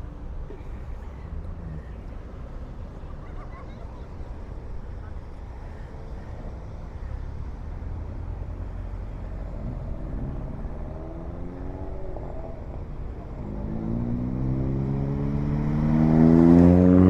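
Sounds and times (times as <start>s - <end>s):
car engines rumbling: 0.0s - 17.0s
car accelerating away: 7.1s - 17.0s.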